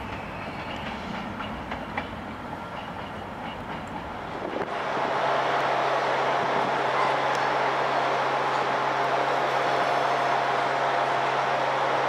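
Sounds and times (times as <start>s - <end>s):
passenger train rolling over rails: 0.0s - 12.0s.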